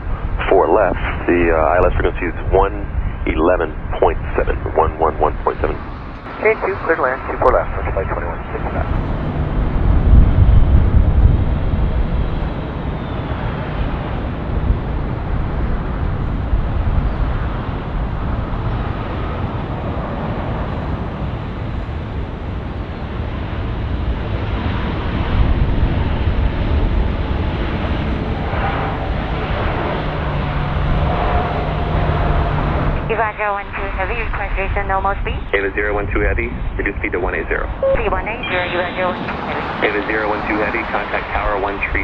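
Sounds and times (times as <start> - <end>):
jet engine rumble and hiss: 0.0 - 42.0.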